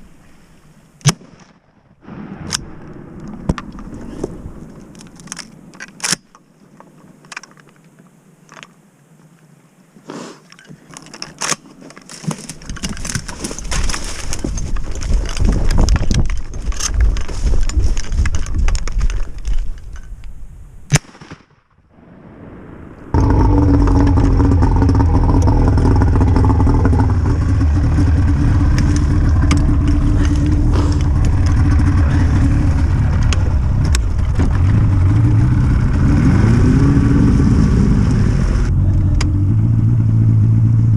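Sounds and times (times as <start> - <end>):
sharp cracks: 1.0 - 6.5, 20.8 - 36.7
wind-like rumble: 1.9 - 7.4, 12.4 - 20.9, 21.9 - 40.9
outboard motor running: 23.2 - 39.6.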